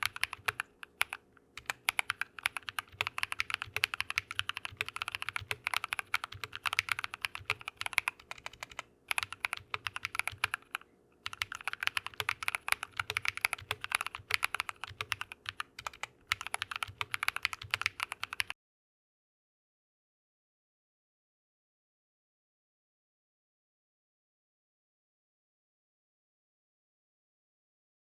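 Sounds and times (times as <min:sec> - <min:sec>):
fast mechanical keyboard typing: 0:00.0 - 0:18.6.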